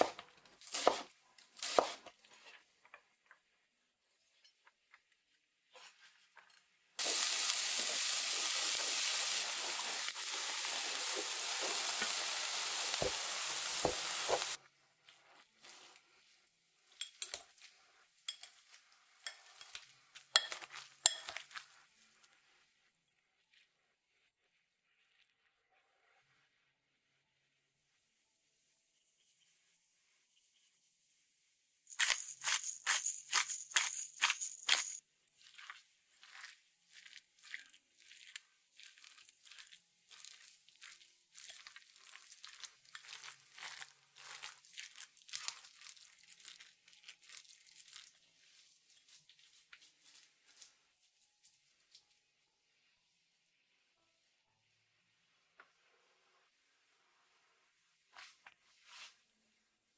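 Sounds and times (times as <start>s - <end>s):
metal utensil clinking on cookware: 18.3s - 21.4s
soft scraping and rustling: 58.1s - 59.4s.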